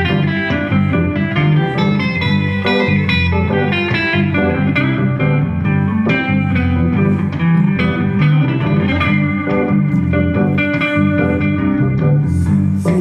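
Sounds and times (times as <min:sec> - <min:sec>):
electric guitar: 0:00.0 - 0:13.0
live blues band playing: 0:00.0 - 0:13.0.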